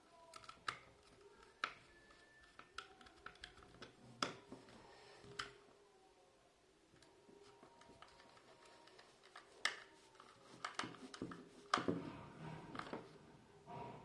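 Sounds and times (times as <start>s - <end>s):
plastic parts clicking: 0.0s - 5.6s, 7.0s - 12.0s.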